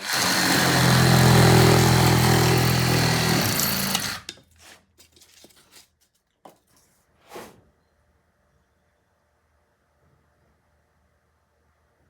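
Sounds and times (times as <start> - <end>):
reciprocating saw cutting foam: 0.0 - 4.4
faint knocks and scrapes: 4.3 - 7.9.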